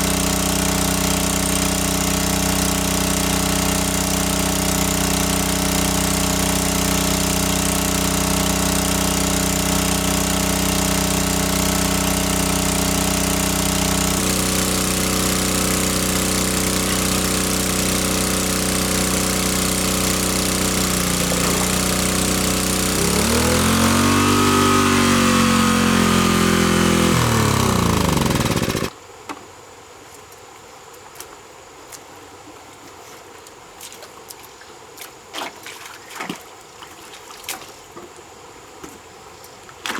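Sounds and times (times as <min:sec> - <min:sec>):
motorboat engine running: 0:00.0 - 0:28.9.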